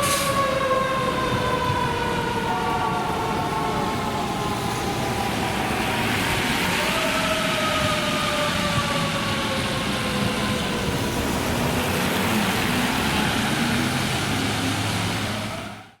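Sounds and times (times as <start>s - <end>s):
emergency vehicle siren: 0.0s - 16.0s
heavy engine and road noise: 0.0s - 16.0s.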